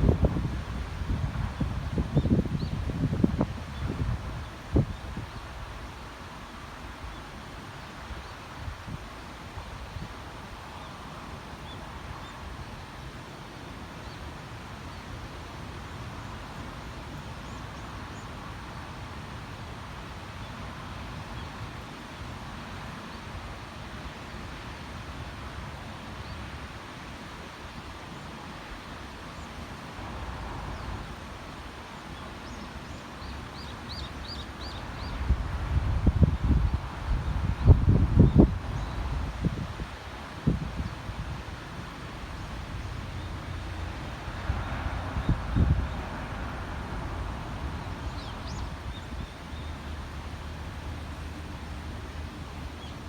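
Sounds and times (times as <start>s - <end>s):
wind rumbling on microphone: 0.0s - 6.0s, 33.9s - 53.0s.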